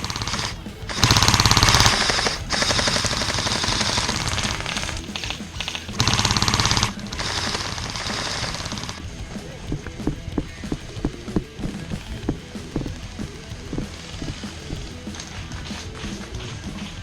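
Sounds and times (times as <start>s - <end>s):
airsoft rifles firing bursts: 0.0s - 9.1s.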